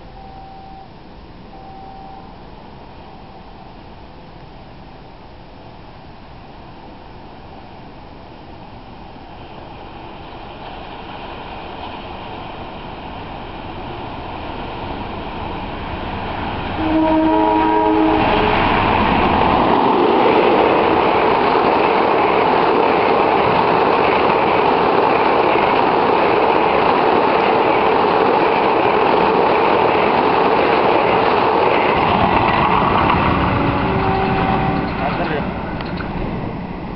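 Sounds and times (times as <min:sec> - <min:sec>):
train wheels rushing on rails: 0:06.0 - 0:36.9
train horn blast: 0:16.8 - 0:18.7, 0:33.3 - 0:35.4.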